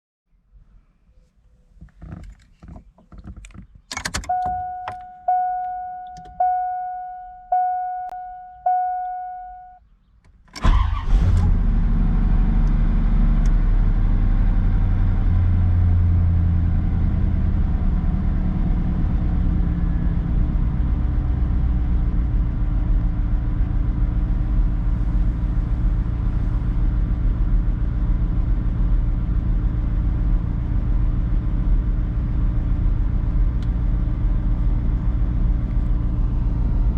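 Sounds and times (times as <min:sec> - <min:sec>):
car engine cranking and idling: 0:01.6 - 0:36.9
dashboard warning chime: 0:04.2 - 0:09.8.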